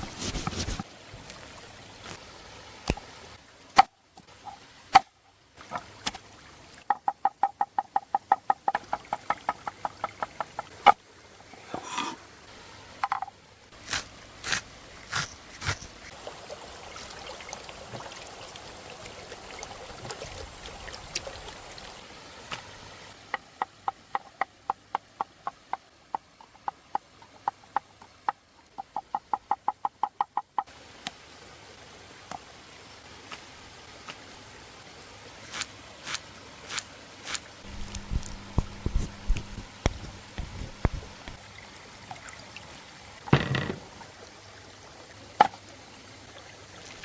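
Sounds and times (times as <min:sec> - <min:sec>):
sharp knocks: 0:43.3 - 0:43.9.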